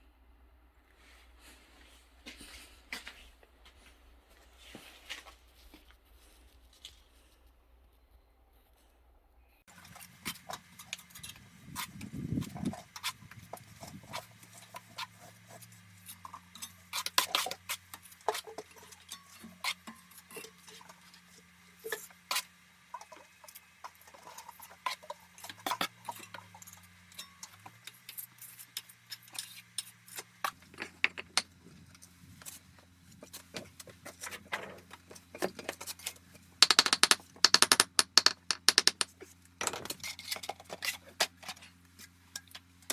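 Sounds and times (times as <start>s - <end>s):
clicks knocks and scrapes of hand work: 21.9s - 31.5s, 33.2s - 42.9s.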